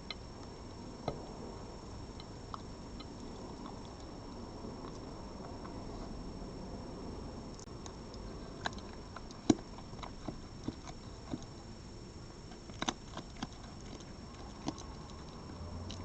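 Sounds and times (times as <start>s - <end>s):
animal crunching food: 0.0s - 6.3s, 7.6s - 16.0s.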